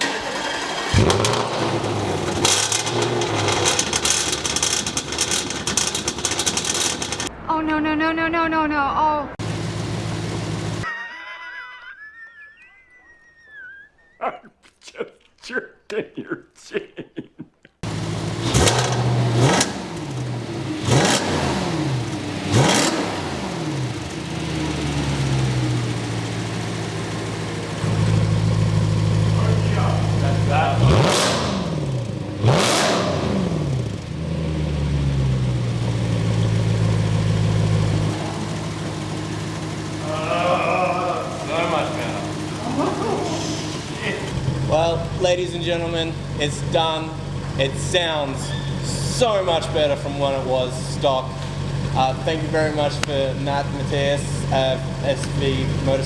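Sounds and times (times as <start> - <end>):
car engine running loud and harsh: 0.0 - 7.3, 9.4 - 10.8, 17.8 - 56.0
starter motor cranking: 0.0 - 7.3, 37.0 - 45.1.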